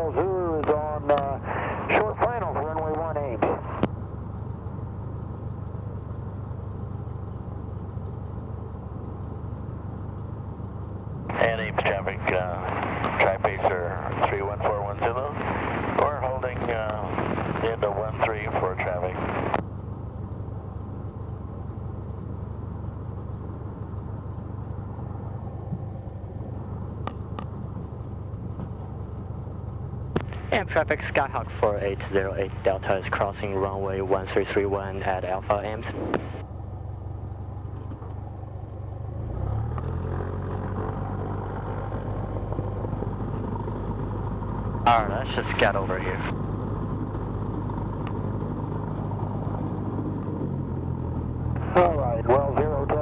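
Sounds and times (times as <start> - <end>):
propeller plane engine drone: 0.0 - 53.0.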